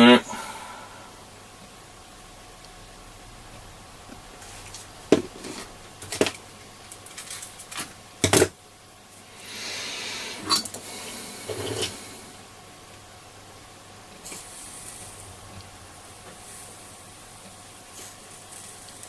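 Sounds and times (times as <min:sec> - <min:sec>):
flux sizzling under soldering iron: 0:14.1 - 0:19.0.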